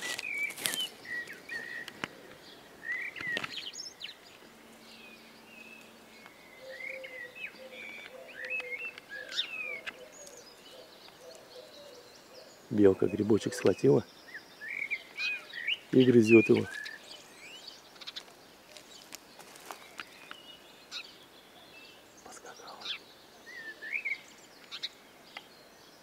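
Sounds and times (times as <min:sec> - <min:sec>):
forest birds chirping: 0:00.0 - 0:26.0.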